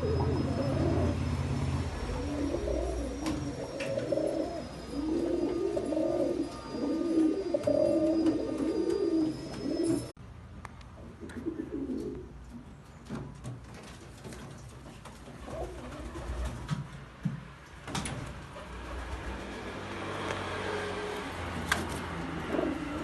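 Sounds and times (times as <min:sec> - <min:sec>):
pigeons cooing: 0:00.0 - 0:10.1, 0:11.2 - 0:12.4, 0:22.2 - 0:23.0.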